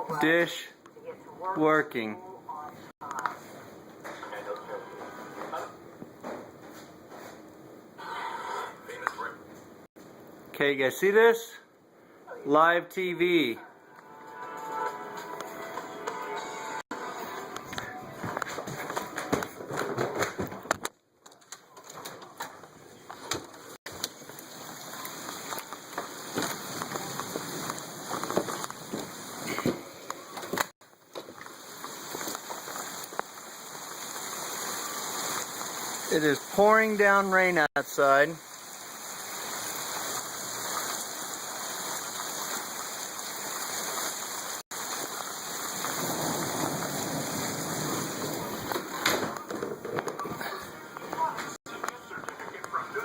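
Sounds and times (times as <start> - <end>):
heavy rain pouring: 23.9 - 30.7, 31.3 - 53.0.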